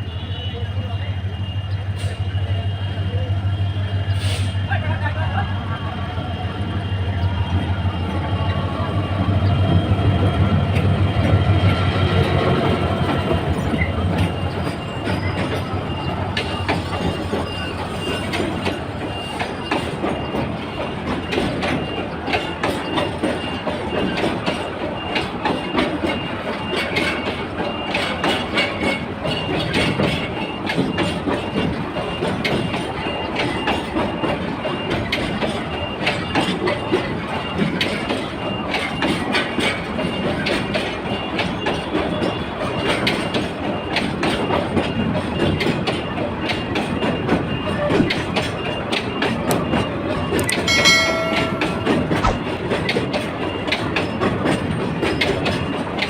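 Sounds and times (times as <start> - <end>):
train wheels clattering on rails: 0.4 - 56.0.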